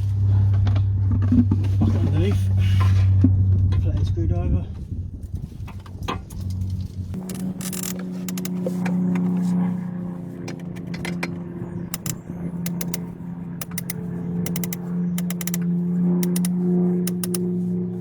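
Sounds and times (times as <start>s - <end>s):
steady low hum: 0.0s - 18.0s
screwdriver clicking on plastic: 7.2s - 9.3s, 10.5s - 11.3s, 11.9s - 15.6s, 16.2s - 17.5s.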